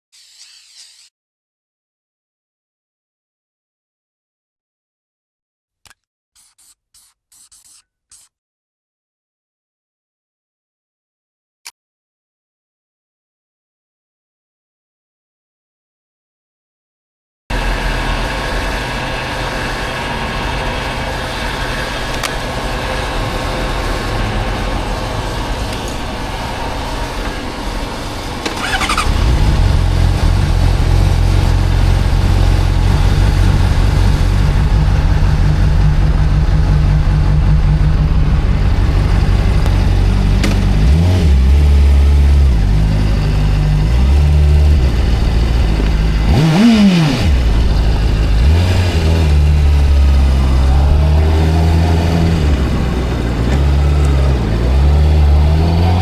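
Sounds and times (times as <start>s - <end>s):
motorcycle engine revving: 17.5s - 56.0s
rising whine: 17.5s - 56.0s.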